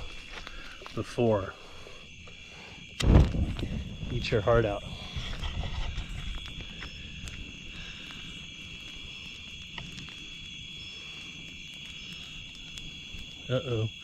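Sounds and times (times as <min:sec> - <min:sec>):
night insects chirping: 0:00.0 - 0:14.0
low rumbling noise: 0:03.0 - 0:08.0.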